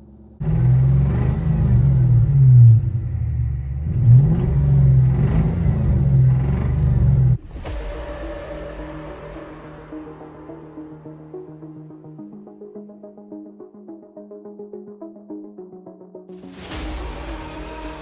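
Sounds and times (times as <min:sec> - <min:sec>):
car engine revving: 0:00.4 - 0:07.4.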